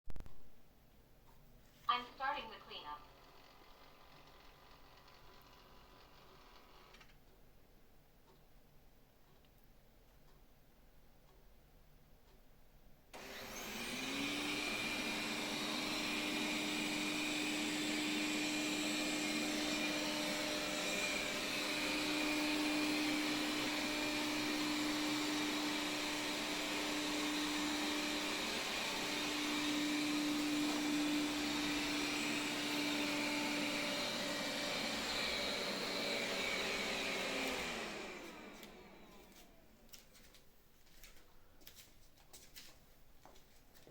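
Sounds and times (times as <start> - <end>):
robot vacuum fan whirring: 13.2 - 40.0.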